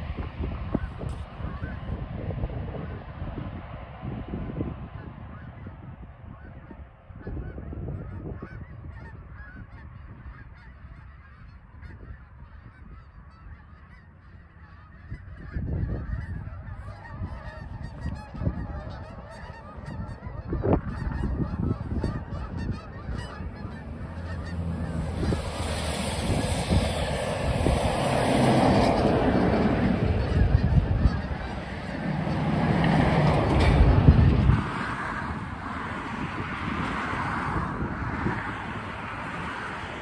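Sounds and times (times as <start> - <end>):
geese honking: 0.7 - 2.0, 5.0 - 36.4
low rumble: 15.2 - 40.0.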